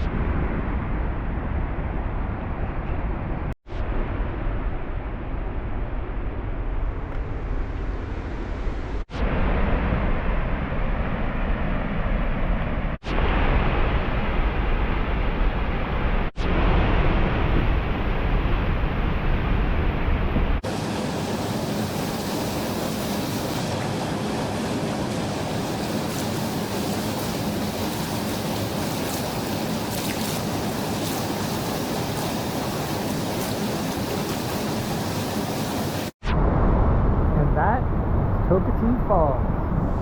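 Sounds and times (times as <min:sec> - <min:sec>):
waterfall rushing: 0:20.6 - 0:36.2.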